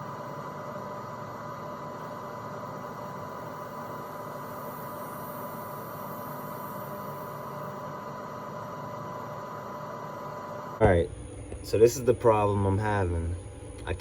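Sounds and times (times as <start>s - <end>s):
constant high-pitched tone: 0.0s - 13.3s
steady hum and hiss: 0.0s - 14.0s.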